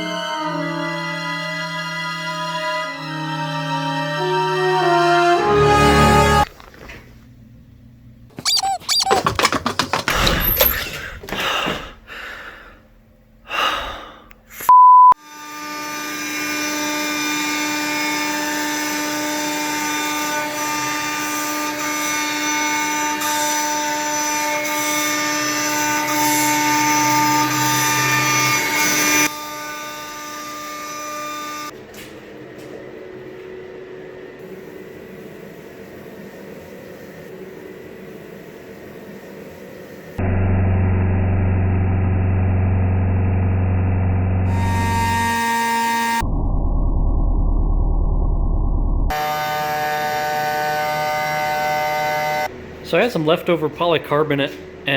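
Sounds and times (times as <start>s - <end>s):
squeaks and knocks: 8.4s - 11.1s
short beep: 14.7s - 15.2s
router spindle whining: 15.3s - 31.7s, 43.8s - 46.2s, 49.1s - 52.5s
steady hum: 27.0s - 54.9s.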